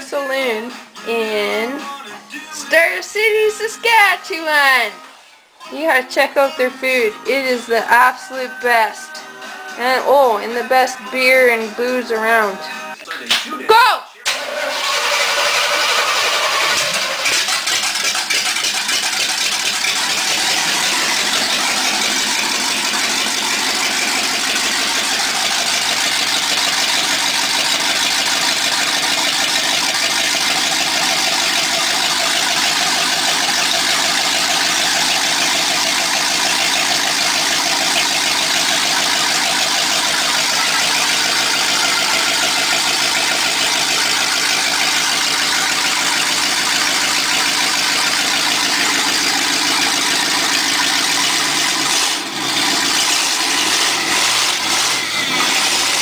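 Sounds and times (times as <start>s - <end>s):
v eight engine running: 14.3s - 56.0s.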